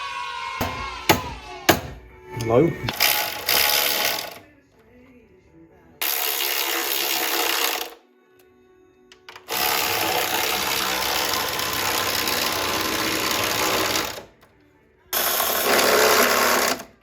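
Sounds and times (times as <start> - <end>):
power tool running: 2.9 - 4.4, 6.0 - 8.0, 9.5 - 14.3, 15.1 - 17.0.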